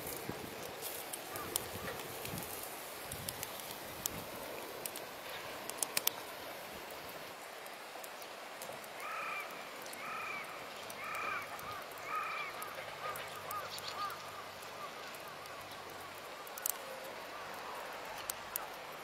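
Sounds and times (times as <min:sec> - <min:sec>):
bird calling: 0:09.0 - 0:15.7.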